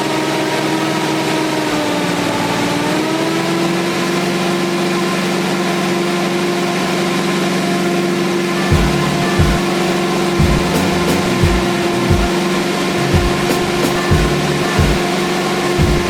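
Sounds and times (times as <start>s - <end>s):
truck engine idling: 8.7s - 15.0s.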